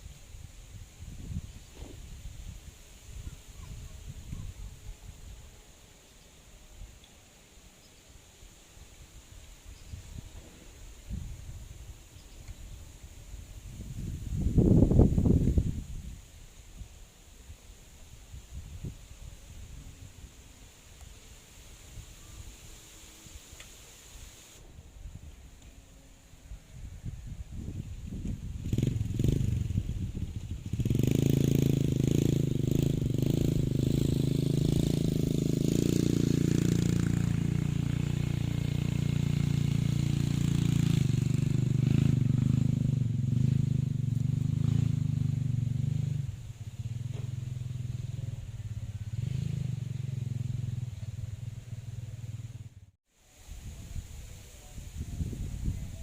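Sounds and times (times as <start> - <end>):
small engine running: 28.5 - 52.6.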